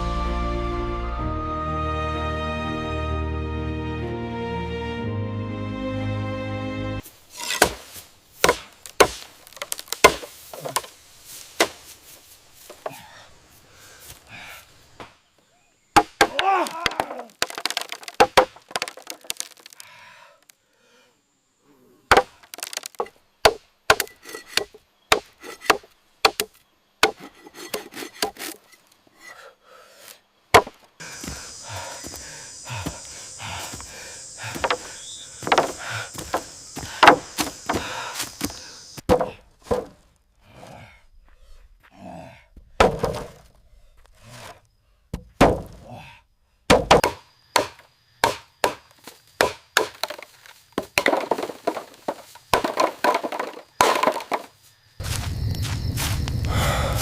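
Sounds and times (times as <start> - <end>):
tools chopping wood: 7.4 - 10.9, 16.0 - 19.8, 22.1 - 28.6, 30.5 - 32.2, 32.8 - 40.0, 42.8 - 43.4, 45.1 - 45.8, 46.7 - 54.5.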